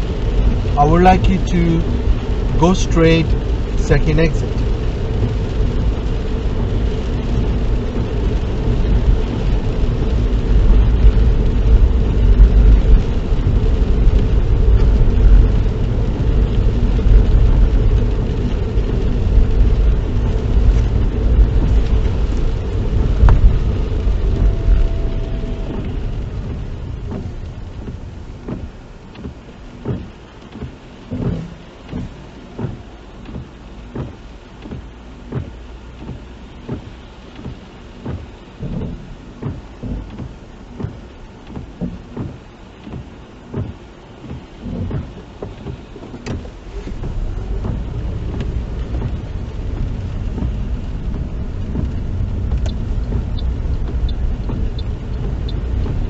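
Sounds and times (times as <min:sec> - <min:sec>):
car road and engine rumble: 0:00.0 - 0:56.0
soft regular knocks: 0:23.1 - 0:56.0.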